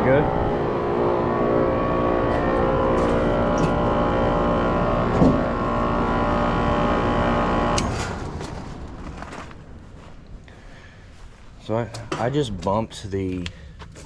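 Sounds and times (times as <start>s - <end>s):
air conditioner humming: 0.0s - 7.8s.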